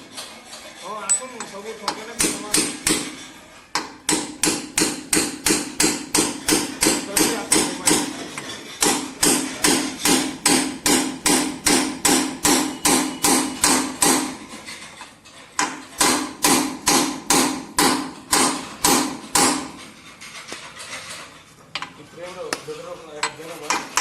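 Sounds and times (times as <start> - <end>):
hammer striking metal: 1.1 - 14.7, 15.6 - 20.0.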